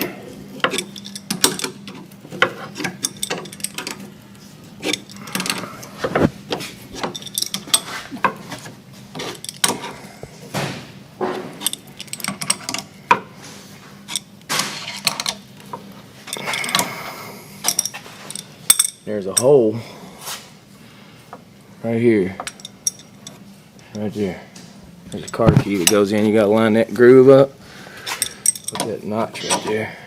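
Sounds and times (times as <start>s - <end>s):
metal tools clicking and scraping: 0.6s - 4.1s, 4.8s - 10.0s, 11.4s - 13.2s, 14.0s - 17.0s, 17.6s - 19.6s, 22.4s - 24.1s, 25.1s - 26.2s, 28.1s - 29.9s.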